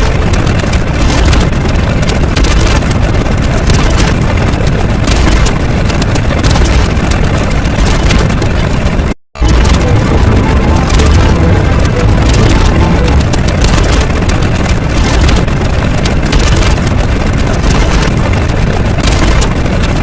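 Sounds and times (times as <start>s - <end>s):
loud dense rumbling: 0.0s - 20.0s.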